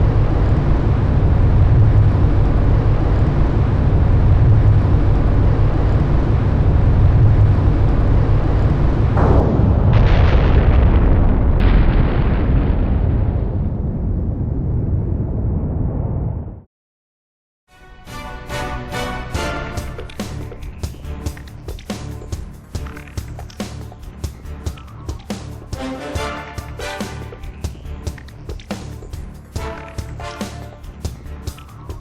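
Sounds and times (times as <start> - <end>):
explosion low rumble: 0.0 - 16.7.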